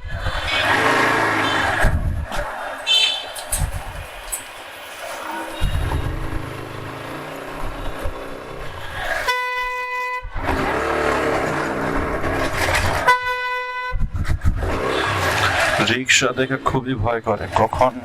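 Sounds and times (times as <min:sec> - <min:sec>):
road and wind rumble: 0:00.0 - 0:18.0
vehicle horn blasts: 0:01.3 - 0:01.8, 0:02.9 - 0:03.3, 0:09.2 - 0:10.3, 0:13.0 - 0:14.1.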